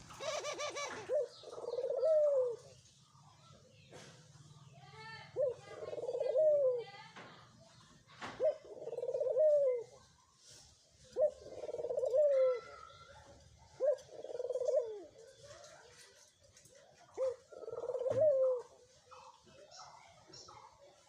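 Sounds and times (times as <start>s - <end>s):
dove cooing: 0.0s - 2.8s, 5.3s - 6.9s, 8.4s - 10.0s, 11.1s - 13.0s, 13.6s - 15.2s, 17.1s - 19.3s.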